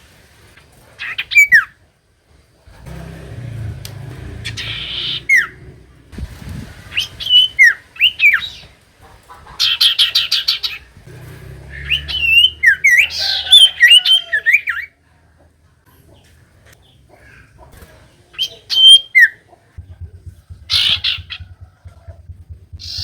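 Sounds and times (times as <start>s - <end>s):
bird rattle call: 2.9s - 6.1s, 20.2s - 23.0s.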